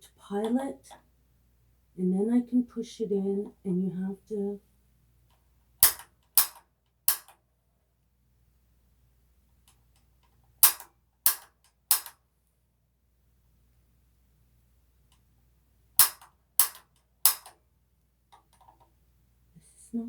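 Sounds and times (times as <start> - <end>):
spark igniter clicking: 5.8 - 7.4, 10.6 - 12.2, 16.0 - 17.6.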